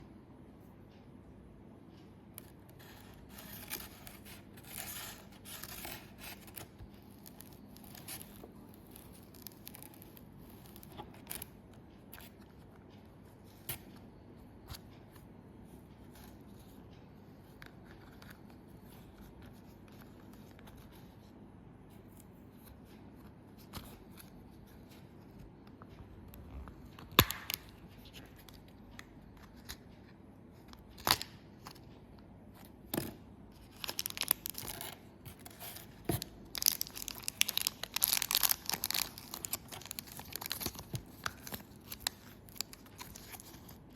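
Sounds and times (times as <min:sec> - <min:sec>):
wrapper crinkling and tearing: 0:33.7 - 0:35.0, 0:36.2 - 0:43.8.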